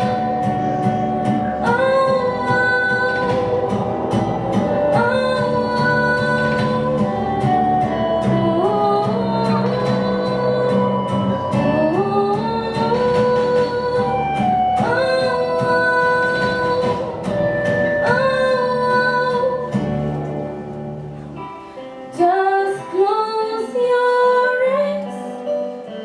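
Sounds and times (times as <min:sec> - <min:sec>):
person singing: 0:00.0 - 0:20.7
guitar chords: 0:00.0 - 0:26.0.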